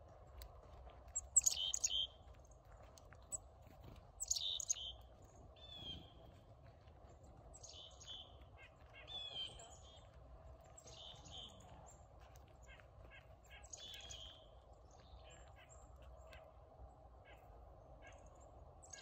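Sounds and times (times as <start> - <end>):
songbird buzzy high calls: 1.4 - 2.0, 4.2 - 4.8.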